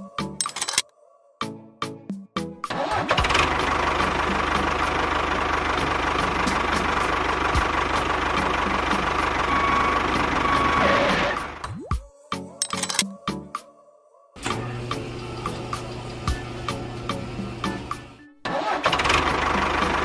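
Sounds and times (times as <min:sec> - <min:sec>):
engine chugging: 0:03.0 - 0:11.6, 0:14.6 - 0:20.0.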